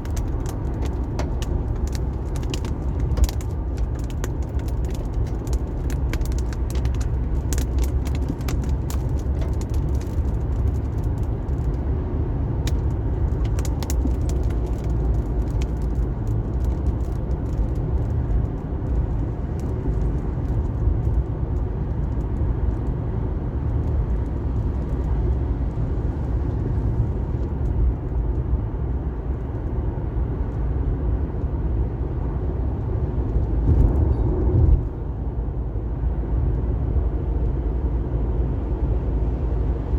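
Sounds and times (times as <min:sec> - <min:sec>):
car engine and tyres on wet road: 0:00.0 - 0:39.9.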